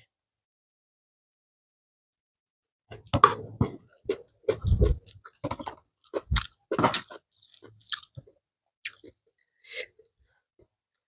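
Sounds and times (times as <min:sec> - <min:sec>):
person chewing crunchy food: 0:03.4 - 0:09.6.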